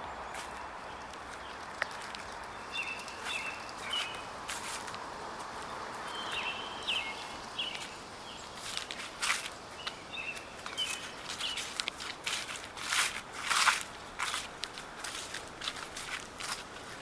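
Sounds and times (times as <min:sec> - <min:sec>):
small birds chirping: 0:00.0 - 0:12.6
footsteps crunching dry leaves: 0:00.2 - 0:17.0.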